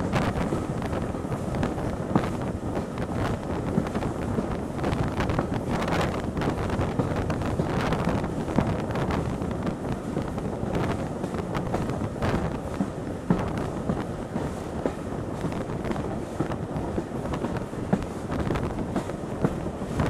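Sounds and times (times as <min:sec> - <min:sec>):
train carriage rumbling on track: 0:00.0 - 0:20.0
wind buffeting microphone: 0:00.0 - 0:20.0.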